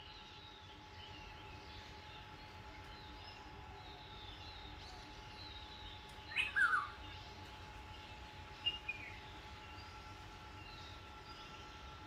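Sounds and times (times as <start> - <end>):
bird call with falling notes: 6.3 - 7.0.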